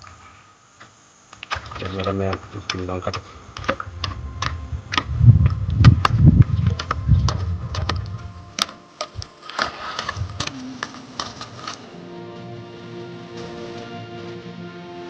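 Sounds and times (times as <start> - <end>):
irregular sharp clicks and taps: 0.8 - 10.5
low rumble: 3.3 - 8.6.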